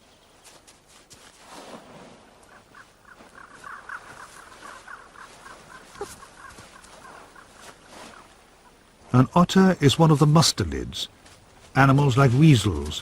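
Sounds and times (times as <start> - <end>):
animal chirping: 2.6 - 8.3.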